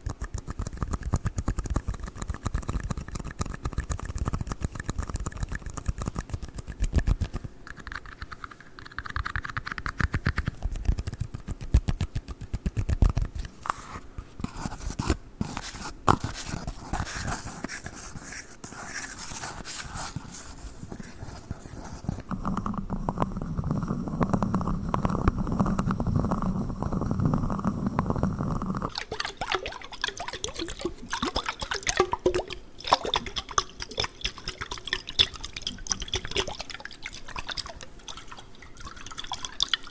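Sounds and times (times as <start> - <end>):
tapping and scratching on cups: 0.0 - 39.9
water sounds: 28.9 - 39.9.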